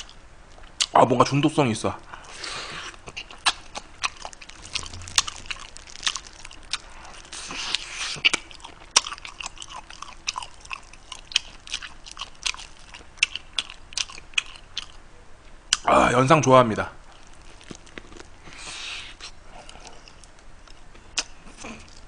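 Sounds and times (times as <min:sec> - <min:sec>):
chewing and biting meat: 0:02.2 - 0:15.0, 0:17.1 - 0:22.0.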